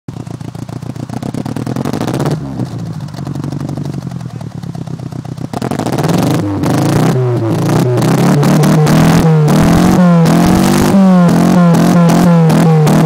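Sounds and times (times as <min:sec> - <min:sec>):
car engine revving: 0:00.2 - 0:13.0.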